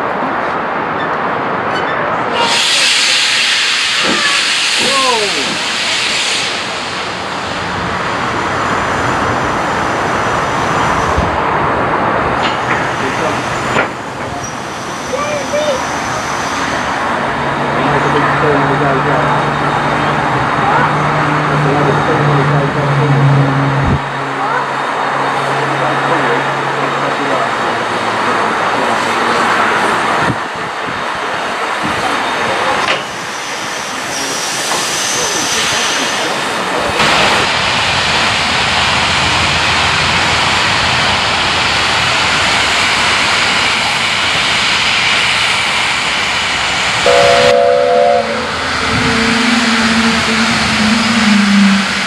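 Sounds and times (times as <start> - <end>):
steam train rushing roar: 0.0 - 52.0
steam hissing: 2.4 - 11.3, 32.6 - 52.0.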